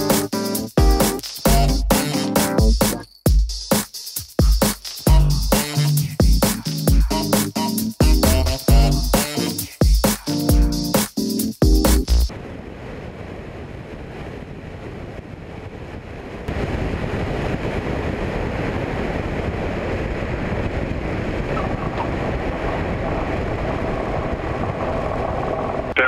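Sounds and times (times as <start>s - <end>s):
aircraft engine and propeller: 20.3s - 26.0s.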